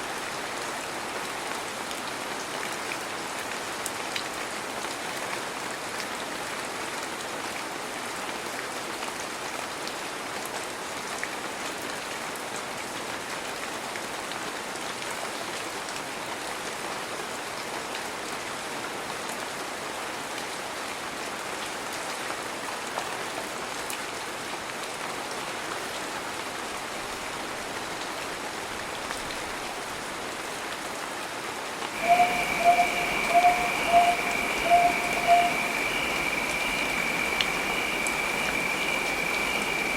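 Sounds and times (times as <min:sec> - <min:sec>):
heavy rain hissing: 0:31.7 - 0:39.9
steady high tone: 0:31.9 - 0:39.9.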